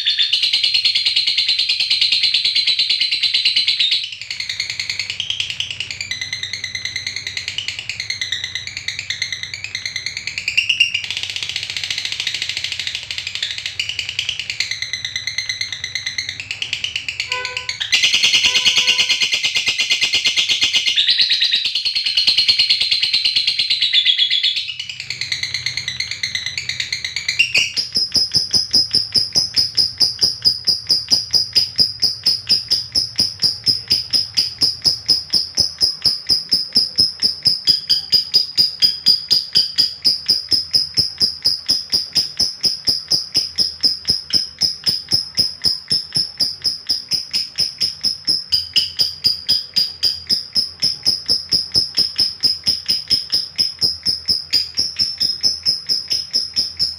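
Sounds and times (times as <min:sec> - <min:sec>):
lovebird chattering: 0:00.0 - 0:56.9
lovebird high trill: 0:17.2 - 0:56.9.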